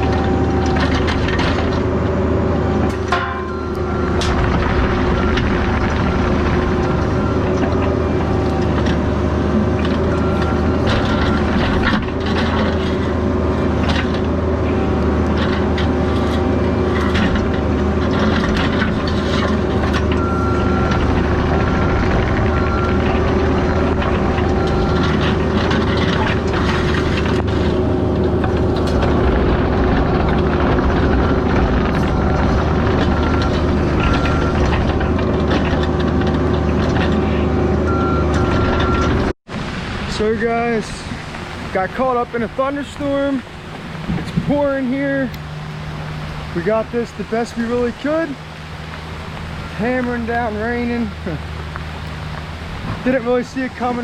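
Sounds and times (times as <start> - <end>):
diesel engine running: 0.0 - 54.0
beeping alarm: 2.7 - 4.3, 32.2 - 34.7, 37.9 - 39.2.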